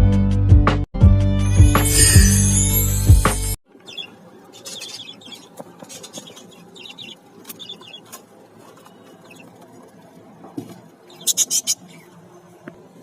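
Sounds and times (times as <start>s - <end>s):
parrots chirping: 3.8s - 8.1s, 11.1s - 12.1s
birds rustling and clicking: 3.9s - 11.8s.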